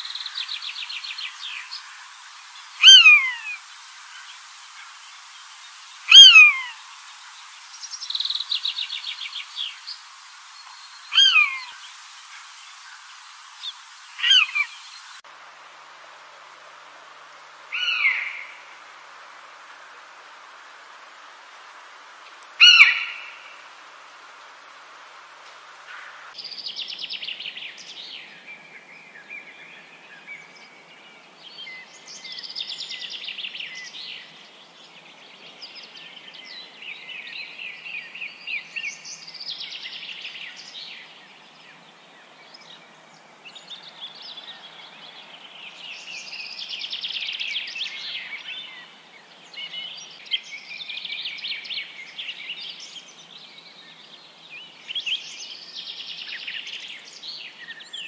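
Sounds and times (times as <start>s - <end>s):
birds chirping in trills: 0.0s - 15.2s, 17.7s - 18.8s, 22.6s - 23.6s.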